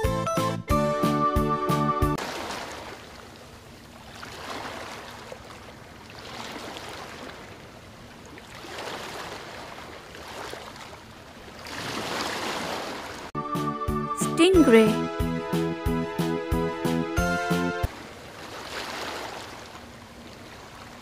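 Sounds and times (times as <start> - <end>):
sea water lapping: 2.2 - 13.3, 17.9 - 21.0.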